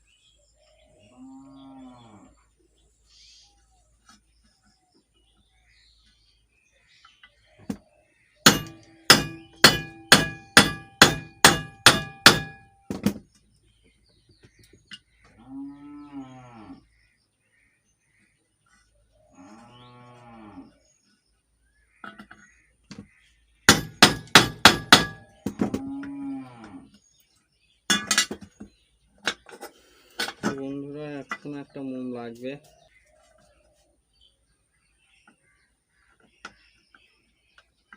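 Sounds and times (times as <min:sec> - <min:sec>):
cow mooing: 0:01.1 - 0:02.3, 0:15.4 - 0:16.8, 0:19.4 - 0:20.7, 0:25.8 - 0:26.9
hammer striking metal: 0:08.5 - 0:13.0, 0:23.7 - 0:25.6.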